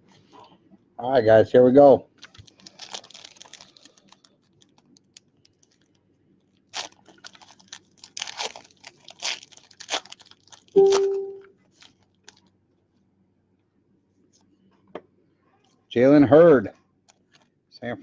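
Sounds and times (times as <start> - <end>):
wrapper tearing and crinkling: 2.2 - 5.9, 6.6 - 11.1, 11.7 - 12.5
brief hum-like tone: 10.8 - 11.5.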